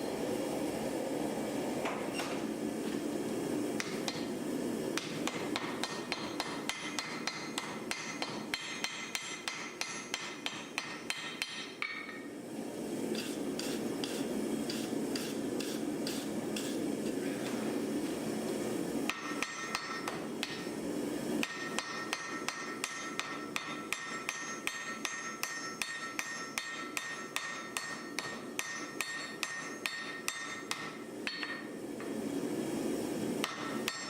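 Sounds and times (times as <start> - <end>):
hammer striking iron on anvil: 3.8 - 4.3, 5.0 - 12.3, 19.1 - 20.7, 21.4 - 31.7, 33.4 - 34.0.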